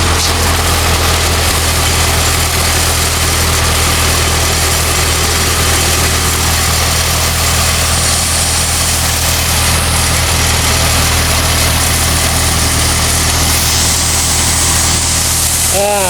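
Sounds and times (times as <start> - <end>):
pump running: 0.0 - 16.0
tractor engine idling: 0.0 - 16.0.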